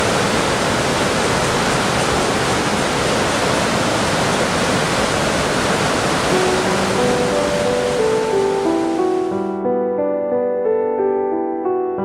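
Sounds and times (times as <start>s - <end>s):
stream water rushing over rocks: 0.0s - 9.4s.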